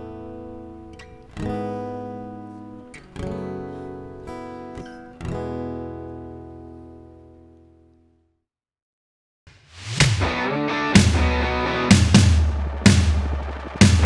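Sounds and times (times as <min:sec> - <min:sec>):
acoustic guitar strumming chords: 0:10.2 - 0:14.0.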